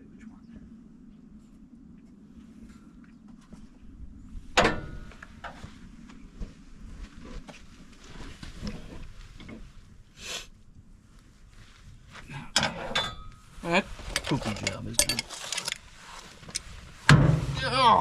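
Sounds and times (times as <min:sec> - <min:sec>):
hand tools clanking on metal: 0:12.6 - 0:13.4, 0:14.1 - 0:15.8.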